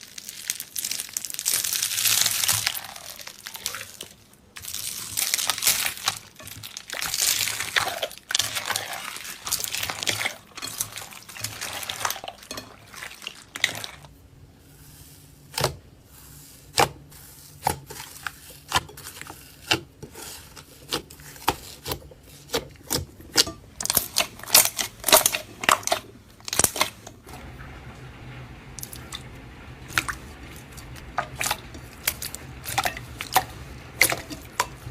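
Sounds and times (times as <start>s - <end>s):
slime crinkling and crackling: 0.0s - 34.9s.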